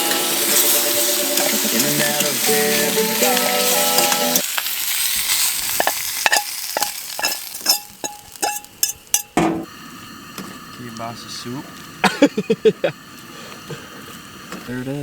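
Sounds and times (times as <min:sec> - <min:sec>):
food sizzling in a frying pan: 0:00.0 - 0:09.3
utensil scraping a pan: 0:05.3 - 0:09.4.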